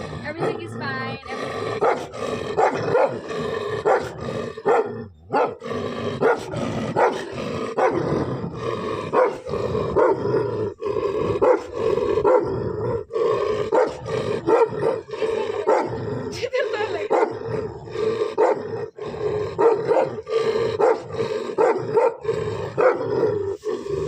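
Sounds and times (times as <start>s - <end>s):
dog growling: 0.0s - 24.0s
dog barking: 1.8s - 5.6s, 6.2s - 8.0s, 9.1s - 10.2s, 11.4s - 12.5s, 13.7s - 16.0s, 17.1s - 17.4s, 18.3s - 18.6s, 19.6s - 20.2s, 20.8s - 23.1s.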